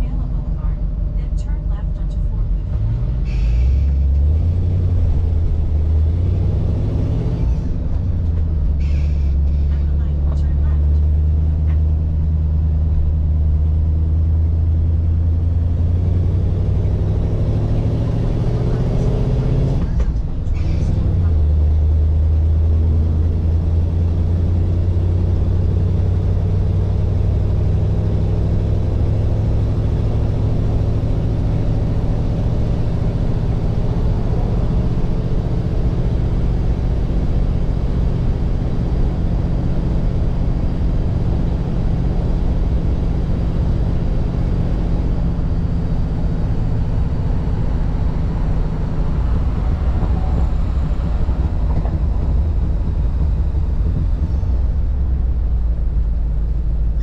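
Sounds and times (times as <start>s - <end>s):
car engine drone: 0.0s - 57.0s
tyre and road noise: 2.1s - 57.0s.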